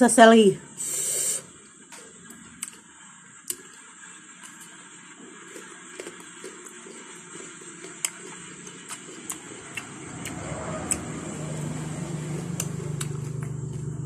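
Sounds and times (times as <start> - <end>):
chewing fruit: 2.2 - 14.0
low engine hum: 9.4 - 14.0.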